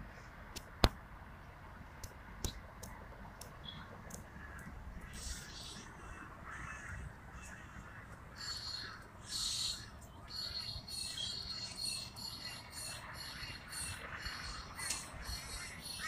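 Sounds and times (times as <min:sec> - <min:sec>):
birds calling: 0:03.6 - 0:16.0.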